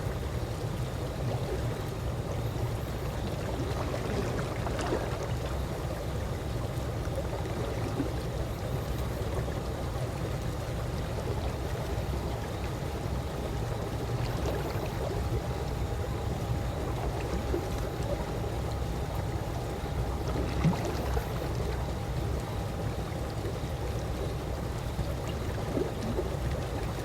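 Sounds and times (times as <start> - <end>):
faint steady hum: 0.0 - 27.0
pool water lapping: 0.0 - 27.0
small water splashes: 1.2 - 6.0, 13.8 - 15.8, 19.5 - 27.0.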